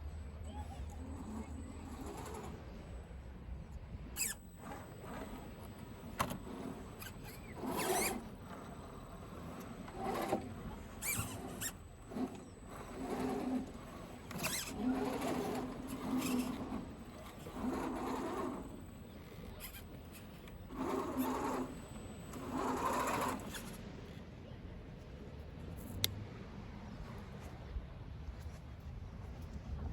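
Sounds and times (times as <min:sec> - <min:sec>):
toy car electric motor whining: 0:00.5 - 0:02.8, 0:04.1 - 0:23.8.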